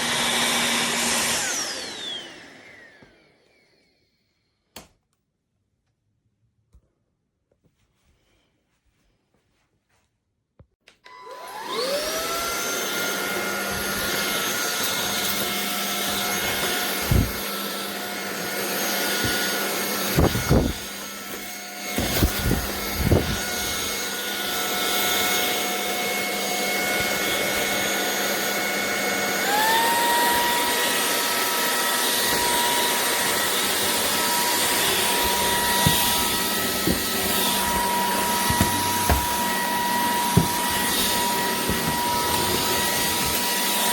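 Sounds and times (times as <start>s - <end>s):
stick vacuum cleaner whine: 0.0s - 4.9s, 10.8s - 43.9s
knocks: 40.3s - 40.8s.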